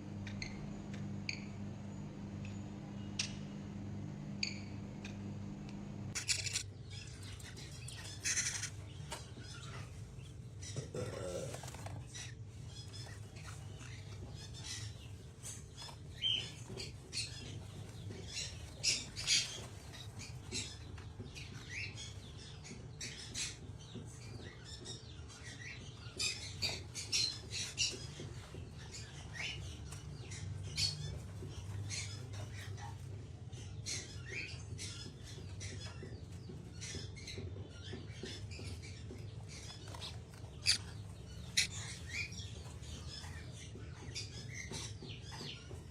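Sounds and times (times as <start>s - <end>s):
low hum: 0.0s - 8.0s
parrot chirping and squawking: 6.1s - 9.9s, 39.6s - 43.4s.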